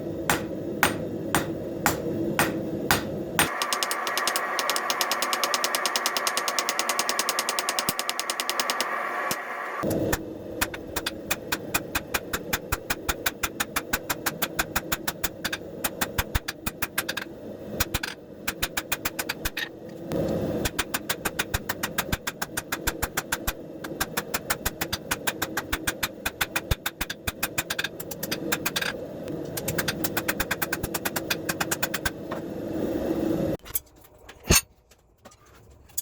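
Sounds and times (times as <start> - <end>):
hammer blows on hot steel: 0.3 - 8.8.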